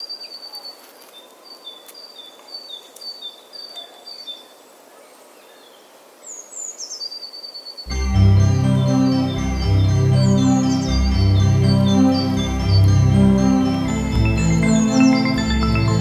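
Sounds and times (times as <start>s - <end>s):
organ music: 7.9s - 16.0s.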